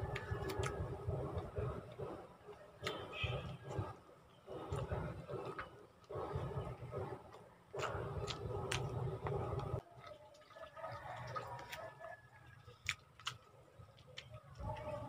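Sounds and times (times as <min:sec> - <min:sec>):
low rumbling noise: 0:00.0 - 0:09.8
person chewing with wet mouth clicks: 0:12.5 - 0:14.3.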